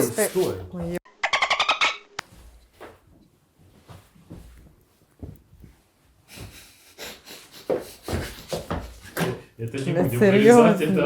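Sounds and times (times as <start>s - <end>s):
people stifling laughter: 6.9s - 9.4s.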